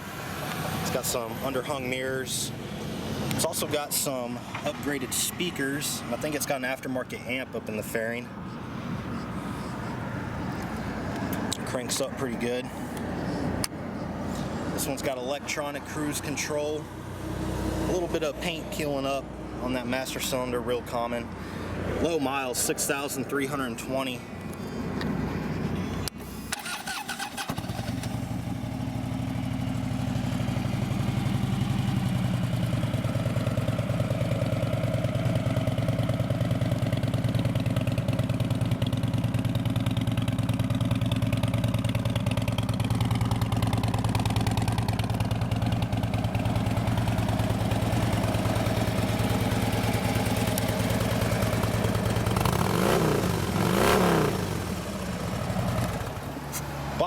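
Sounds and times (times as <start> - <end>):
motorcycle engine idling: 0.6 - 14.6, 26.6 - 57.0.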